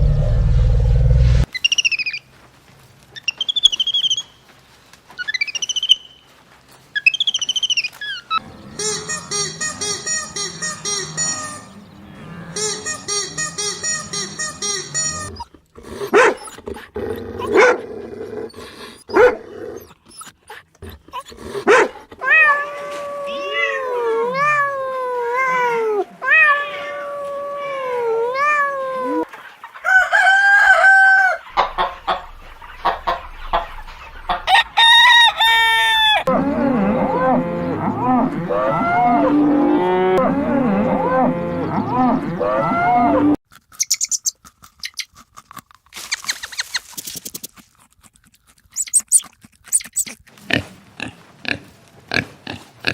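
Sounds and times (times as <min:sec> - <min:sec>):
hens calling and clucking: 0:01.5 - 0:45.2, 0:48.8 - 0:52.9
rooster crowing: 0:29.8 - 0:43.4.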